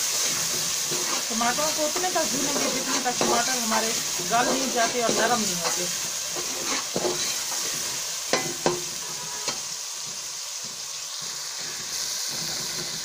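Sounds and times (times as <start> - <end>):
vegetables sizzling in hot oil: 0.0 - 13.0
steel spoon scraping a pot: 0.1 - 7.8.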